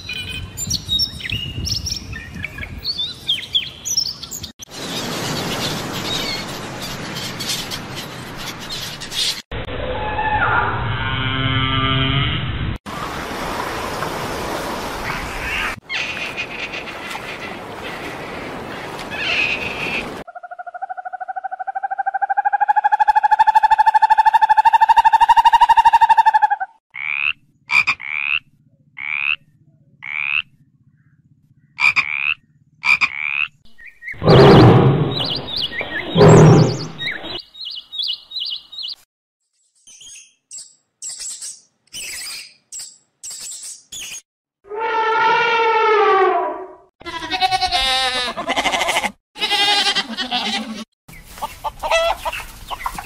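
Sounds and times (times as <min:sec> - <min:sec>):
bird chirping: 0:28.0 - 0:39.0.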